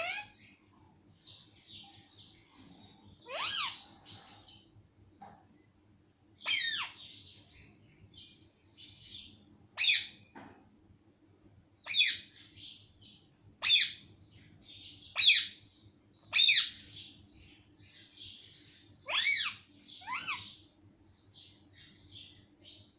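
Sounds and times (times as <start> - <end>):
parrot chattering: 0.0 - 0.3, 3.2 - 3.9, 6.4 - 7.0, 19.0 - 20.5
parrot calling loudly: 0.0 - 0.4, 3.2 - 3.9, 6.4 - 7.0, 9.8 - 10.2, 11.8 - 12.2, 13.6 - 14.0, 15.2 - 15.6, 19.0 - 20.6.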